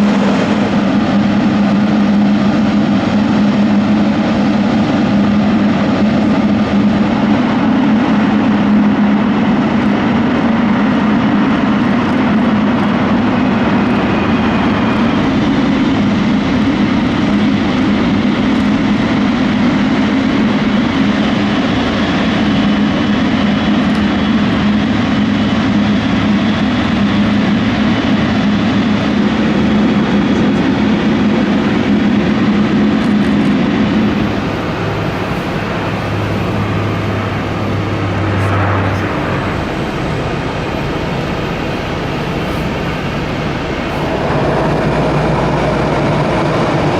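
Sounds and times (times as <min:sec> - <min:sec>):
jet engines running: 0:00.0 - 0:46.9.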